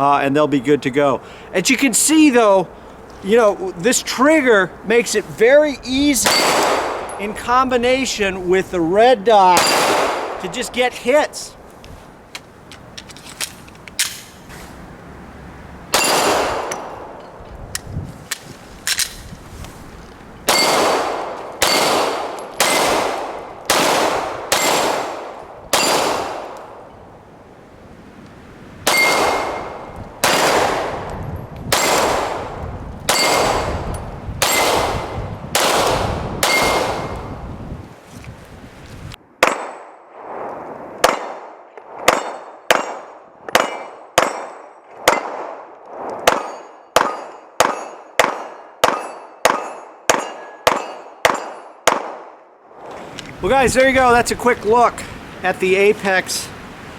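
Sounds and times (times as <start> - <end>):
pistol shots: 6.2 - 7.2, 9.5 - 10.5, 15.9 - 16.9, 20.5 - 26.6, 28.9 - 31.1, 31.7 - 33.8, 34.4 - 37.2, 41.0 - 45.6, 46.2 - 52.4.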